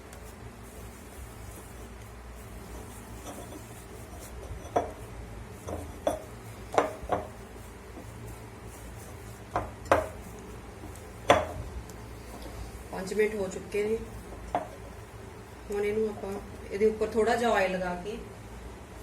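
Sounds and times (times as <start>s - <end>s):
dough rubbing: 0.0s - 16.5s
dough knocking on surface: 5.6s - 8.2s, 9.4s - 11.8s.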